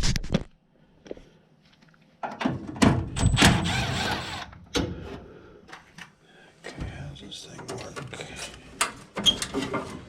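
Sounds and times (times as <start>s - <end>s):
knocks and scraping: 6.7s - 10.0s.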